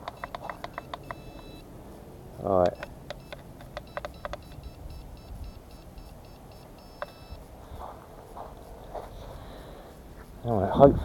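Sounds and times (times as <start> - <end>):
button clicks: 0.0 - 1.6, 2.6 - 5.3, 6.0 - 7.4
short high beeps: 0.0 - 1.7, 2.7 - 7.5.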